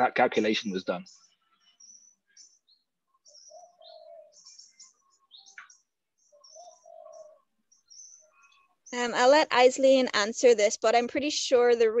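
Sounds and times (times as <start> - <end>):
birds chirping and whistling: 0.4 - 10.0.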